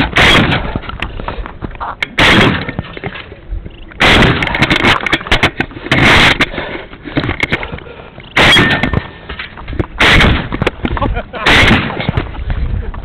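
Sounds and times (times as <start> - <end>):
loud gunshot blasts: 0.0 - 0.8, 2.2 - 2.8, 4.0 - 4.7, 8.4 - 9.1, 10.0 - 10.7, 11.4 - 12.2.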